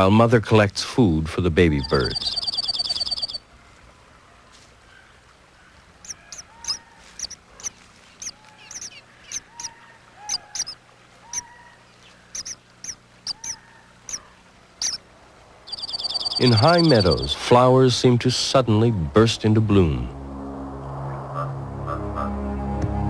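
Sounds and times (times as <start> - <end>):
bird chirping high chip notes: 1.8 - 3.4, 12.4 - 13.6, 14.8 - 15.0, 15.7 - 17.4.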